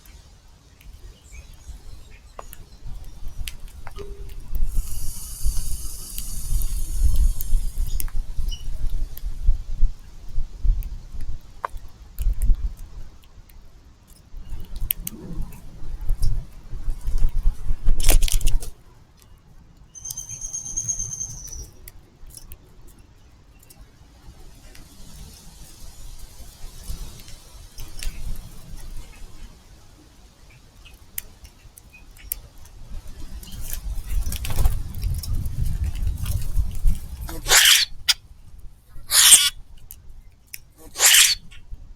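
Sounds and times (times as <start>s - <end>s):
steady high hiss: 0.0s - 10.2s, 24.0s - 31.4s
wind rumble on microphone: 0.8s - 19.0s, 32.5s - 40.3s
wings fluttering: 2.4s - 8.8s, 33.2s - 38.2s, 39.1s - 39.6s, 40.8s - 41.5s
bird chirps: 20.0s - 21.8s, 37.4s - 38.0s, 39.1s - 39.5s, 41.0s - 41.5s.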